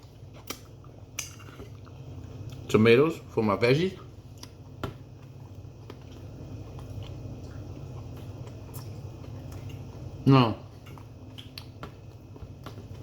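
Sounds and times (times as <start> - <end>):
steady low hum: 0.0 - 13.0
chewing and biting food: 4.3 - 10.1.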